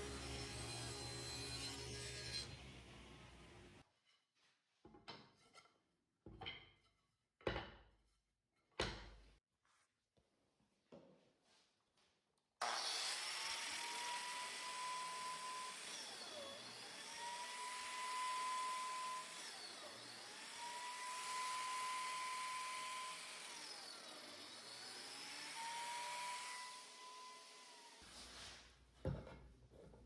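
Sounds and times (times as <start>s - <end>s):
power tool motor whine: 0.0s - 3.8s, 12.6s - 28.0s.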